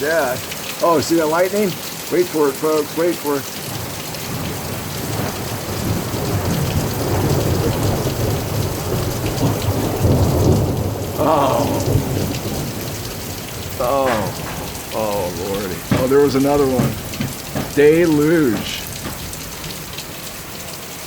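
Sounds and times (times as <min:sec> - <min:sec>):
heavy rain: 0:00.0 - 0:21.0
rolling thunder: 0:03.7 - 0:20.4.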